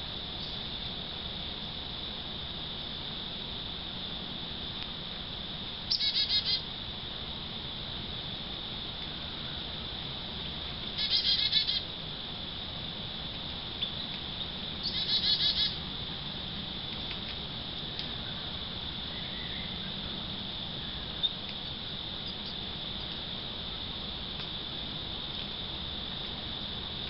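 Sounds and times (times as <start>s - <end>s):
crickets droning: 0.0s - 27.0s
songbird chattering call: 5.9s - 6.6s, 11.0s - 11.8s, 14.8s - 15.8s.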